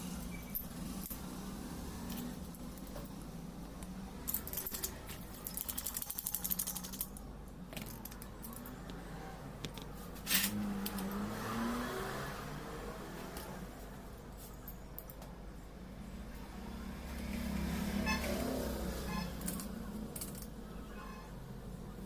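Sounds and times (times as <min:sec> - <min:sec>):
metal parts and tools clinking: 0:00.1 - 0:01.3, 0:04.2 - 0:09.0, 0:10.2 - 0:11.3, 0:19.1 - 0:20.6.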